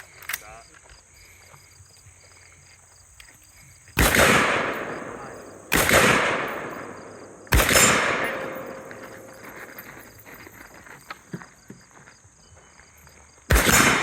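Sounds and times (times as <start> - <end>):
rifle shots with echo: 4.0 - 9.8, 13.5 - 14.0.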